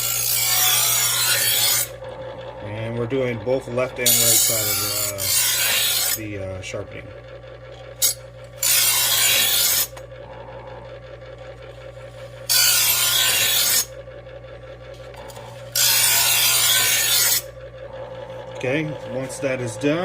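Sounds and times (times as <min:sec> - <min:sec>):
knife blade grinding rasp: 0:00.0 - 0:02.3, 0:03.0 - 0:06.2, 0:07.9 - 0:10.5, 0:12.2 - 0:13.9, 0:15.2 - 0:19.7
knife sharpener motor humming: 0:00.0 - 0:20.0.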